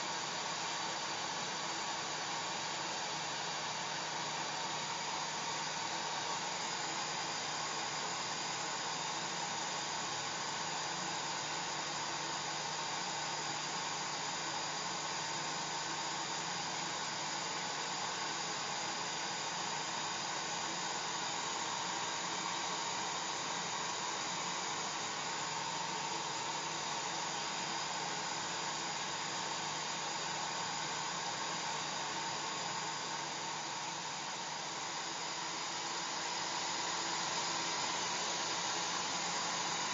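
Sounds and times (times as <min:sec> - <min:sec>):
hair dryer running: 0:18.2 - 0:39.9.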